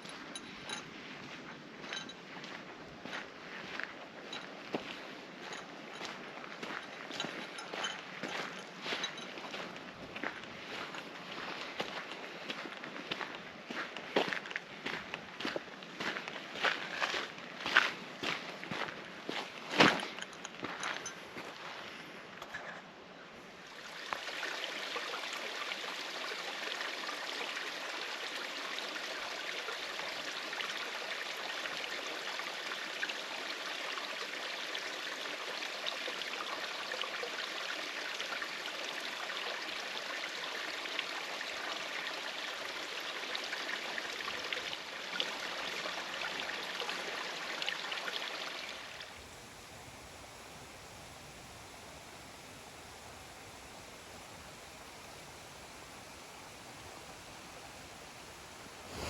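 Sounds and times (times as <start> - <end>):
creek water rushing: 23.6 - 59.0
faint hiss: 48.6 - 59.0.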